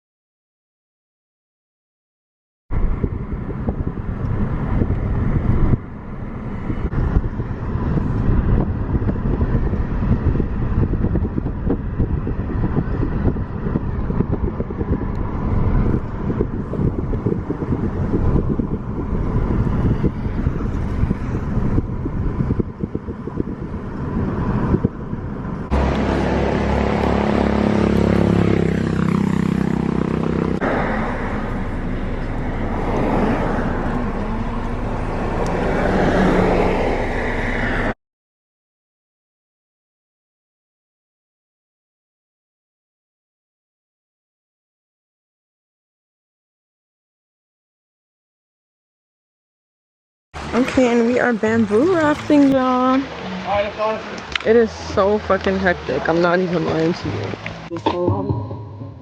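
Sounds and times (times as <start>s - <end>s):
engine and road rumble: 2.7s - 38.0s, 50.4s - 59.0s
wind buffeting microphone: 2.7s - 38.0s, 50.4s - 59.0s
smooth hum with pitched tones: 57.7s - 59.0s.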